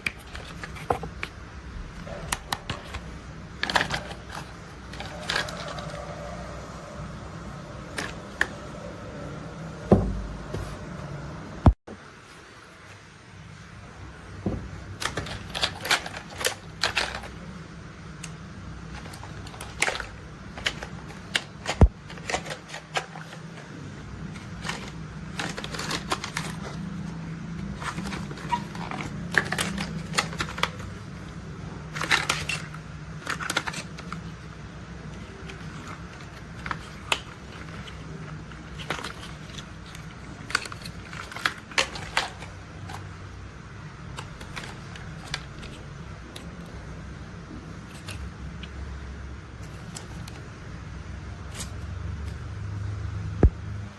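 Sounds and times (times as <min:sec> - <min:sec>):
plastic toys clicking and tapping: 0:02.0 - 0:06.3, 0:14.9 - 0:17.5, 0:18.2 - 0:23.6, 0:24.3 - 0:31.0, 0:31.9 - 0:34.5, 0:35.1 - 0:43.1.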